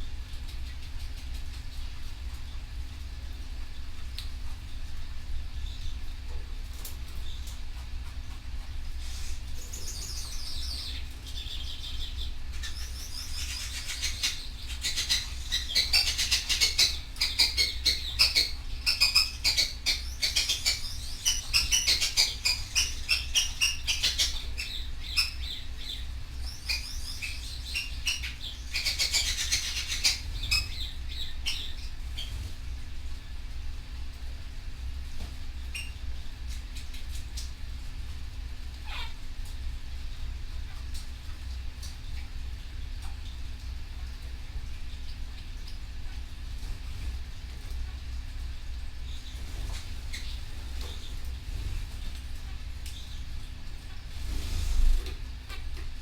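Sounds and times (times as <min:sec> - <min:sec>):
steady low hum: 0:00.0 - 0:56.0
canary singing: 0:09.1 - 0:32.5, 0:35.7 - 0:36.0, 0:38.8 - 0:39.2, 0:49.1 - 0:51.8.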